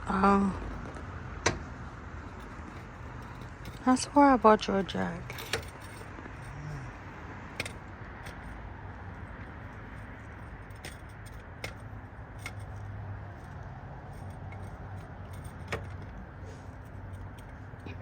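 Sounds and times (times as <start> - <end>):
metal tool clicks and clinks: 5.2 - 6.5, 9.9 - 16.2.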